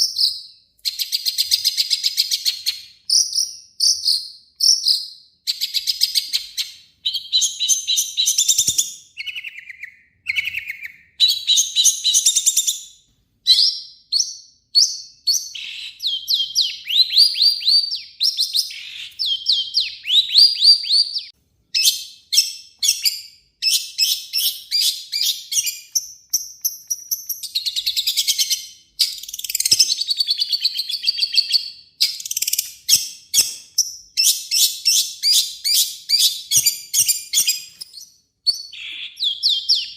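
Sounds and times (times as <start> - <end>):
bird singing harsh chattering phrases: 14.8 - 26.0, 38.5 - 39.9.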